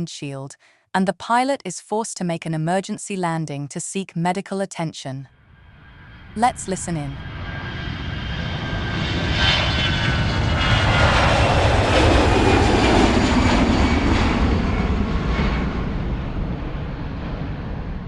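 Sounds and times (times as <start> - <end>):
airplane flying past: 5.3 - 18.0.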